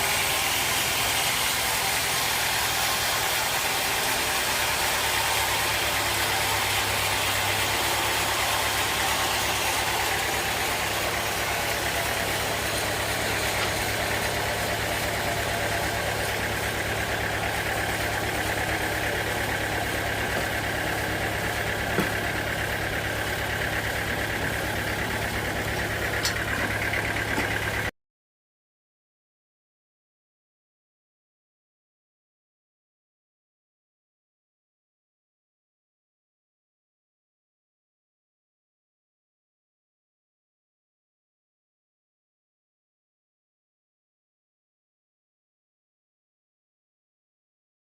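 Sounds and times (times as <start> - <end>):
engine running steadily: 0.0 - 27.9.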